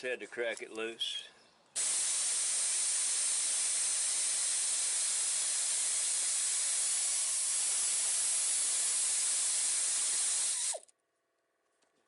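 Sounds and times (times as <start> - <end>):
air ratchet hissing: 1.8 - 10.8.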